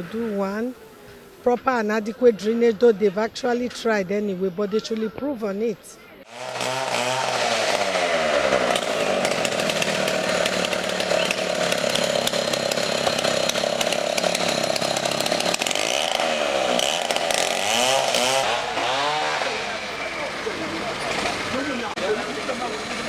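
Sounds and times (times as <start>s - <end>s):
chainsaw running: 6.2s - 23.0s.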